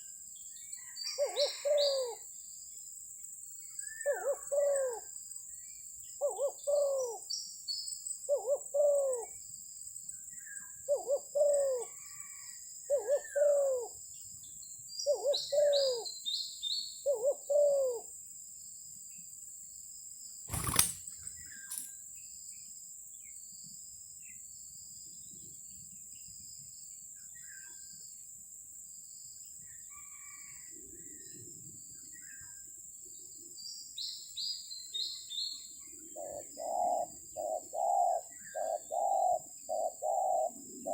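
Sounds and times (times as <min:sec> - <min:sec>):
doves cooing: 0:01.2 - 0:02.2, 0:04.1 - 0:05.0, 0:08.3 - 0:09.2, 0:10.9 - 0:12.0, 0:12.9 - 0:13.9, 0:15.1 - 0:16.0, 0:17.1 - 0:18.0, 0:36.0 - 0:40.9
high insect tone: 0:18.7 - 0:22.6.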